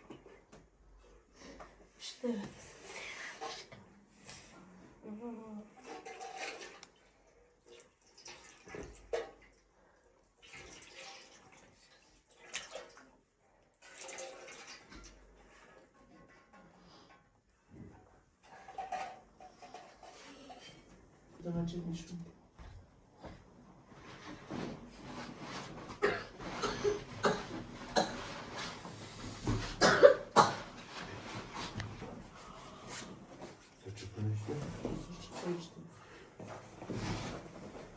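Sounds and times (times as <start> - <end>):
water splashing and pouring: 5.8 - 9.6, 10.4 - 13.2, 13.8 - 15.7
person coughing harshly: 26.0 - 28.4, 29.8 - 30.7.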